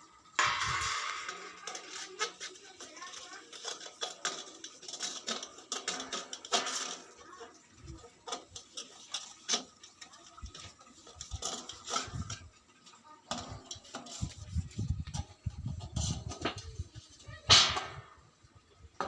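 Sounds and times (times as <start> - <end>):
raindrops tapping: 0.0 - 14.4
wind buffeting microphone: 14.2 - 18.4.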